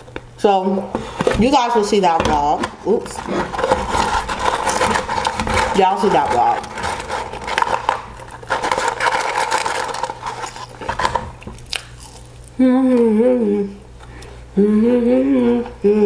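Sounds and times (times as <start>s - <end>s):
paper carton rustling: 1.0s - 11.4s
chewing crunchy fries: 7.2s - 12.6s
short wavering hum: 12.6s - 16.0s.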